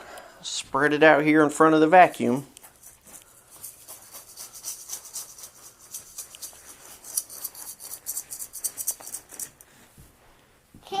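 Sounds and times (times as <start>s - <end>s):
oatmeal flakes spread on floor: 2.0s - 9.6s.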